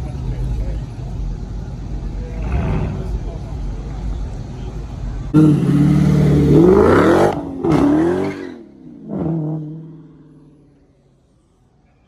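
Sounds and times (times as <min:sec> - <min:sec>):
car engine revving: 0:05.3 - 0:10.9.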